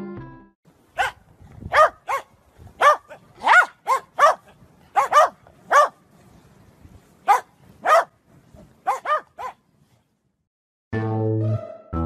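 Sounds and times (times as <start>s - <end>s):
dog barking: 1.0s - 6.0s, 7.2s - 8.1s, 8.8s - 9.6s.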